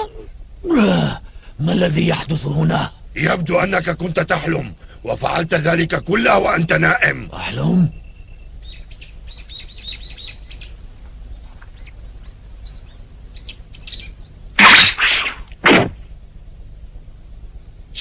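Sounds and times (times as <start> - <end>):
small birds chirping: 3.6 - 14.6.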